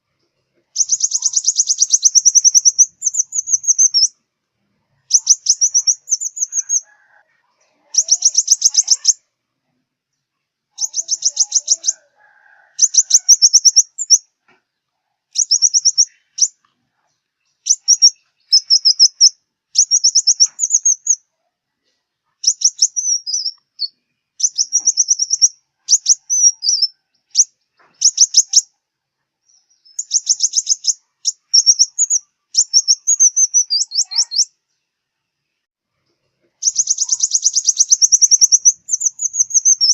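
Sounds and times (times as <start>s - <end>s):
sunbird trilling song: 0.7s - 4.2s, 5.0s - 6.9s, 7.8s - 9.3s, 10.7s - 12.0s, 12.8s - 14.3s, 15.3s - 16.6s, 17.4s - 21.3s, 22.4s - 28.8s, 29.4s - 34.6s, 36.6s - 39.9s.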